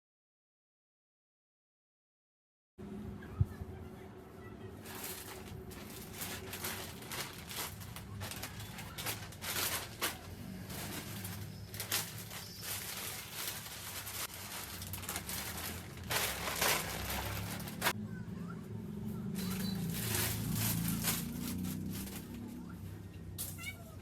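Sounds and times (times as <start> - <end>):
rustling and crinkling: 4.7 - 18.0, 19.4 - 24.0.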